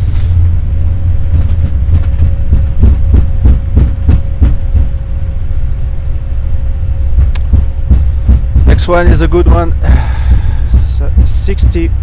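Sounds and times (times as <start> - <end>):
regular thumps: 1.3 - 4.9, 7.2 - 11.9.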